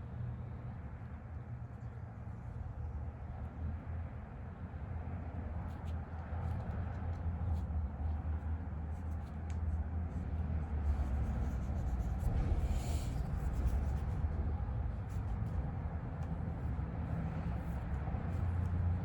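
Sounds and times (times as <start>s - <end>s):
paintbrush strokes scratching: 5.7s - 19.0s
low rumble: 9.9s - 19.0s.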